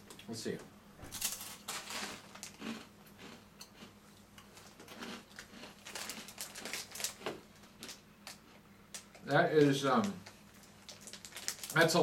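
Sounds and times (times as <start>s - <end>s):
snack bag crinkling: 1.2s - 3.9s, 4.6s - 12.0s
crunchy snack being chewed: 1.7s - 9.2s, 10.5s - 11.8s.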